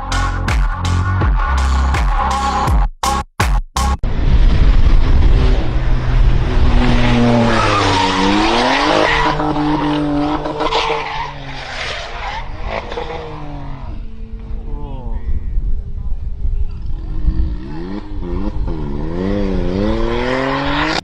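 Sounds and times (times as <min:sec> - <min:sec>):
tyres skidding and squealing: 0:06.4 - 0:14.0.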